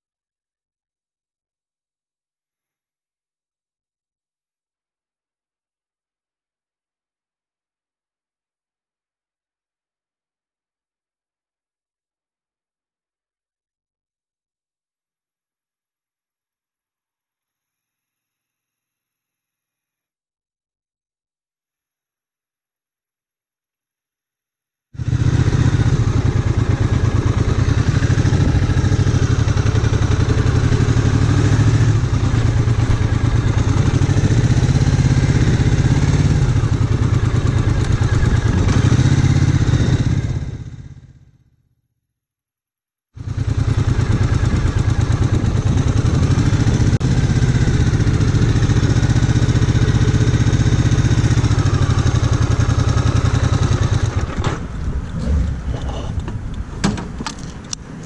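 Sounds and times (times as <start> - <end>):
motorcycle engine running: 25.0 - 41.4, 43.2 - 55.6.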